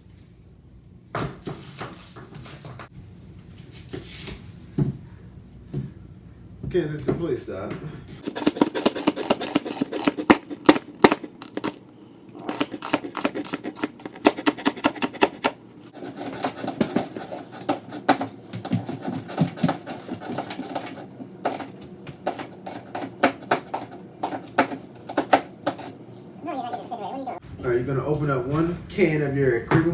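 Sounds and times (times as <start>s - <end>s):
knife chopping on cutting board: 8.2s - 11.8s, 12.4s - 15.6s, 16.2s - 25.9s
knife scraping board: 8.2s - 18.3s.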